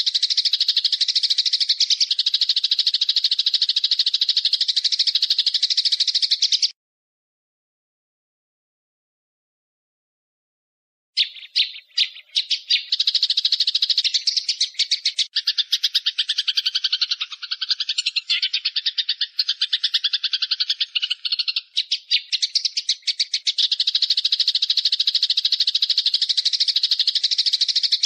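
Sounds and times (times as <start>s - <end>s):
bird call rattle: 0.0s - 6.7s, 11.2s - 28.0s.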